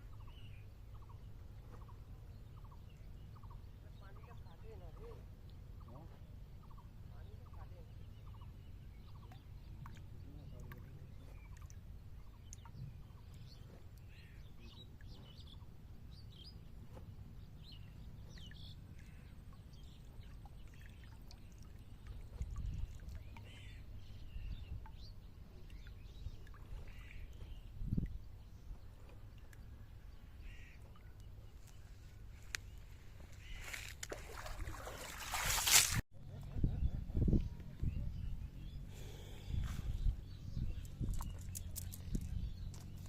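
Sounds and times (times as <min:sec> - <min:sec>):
bird calls: 0:17.6 - 0:21.4, 0:22.0 - 0:28.0, 0:29.4 - 0:43.0.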